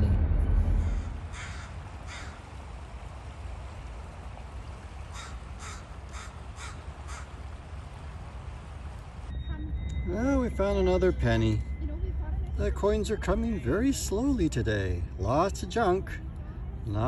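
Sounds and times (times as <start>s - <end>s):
bird cawing harshly: 0.8s - 2.4s, 5.1s - 7.4s
flowing river water: 1.2s - 9.3s.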